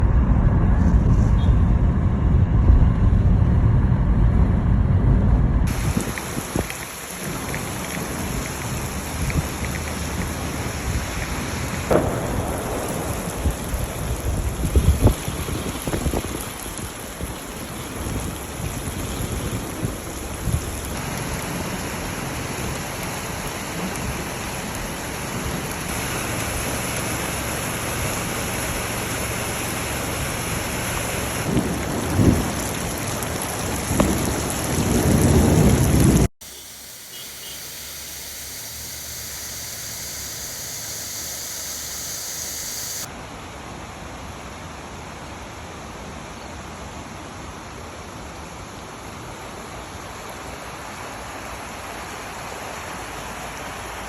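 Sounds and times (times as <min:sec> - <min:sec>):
heavy rain falling: 0:05.7 - 0:41.5.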